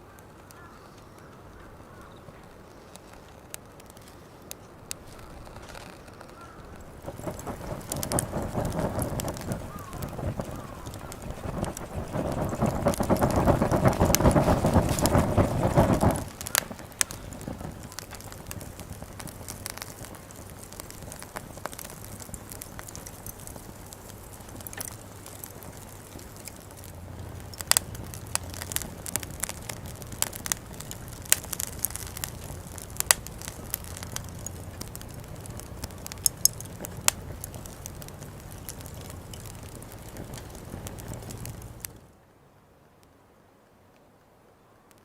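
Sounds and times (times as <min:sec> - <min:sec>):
campfire crackling and popping: 0:00.0 - 0:42.2.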